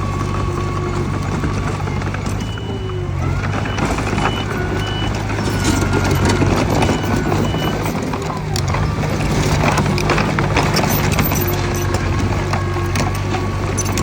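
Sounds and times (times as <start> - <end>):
bulldozer diesel engine running: 0.0 - 14.0
reversing alarm beeping: 0.2 - 9.1
tracks and blade clattering: 3.7 - 14.0.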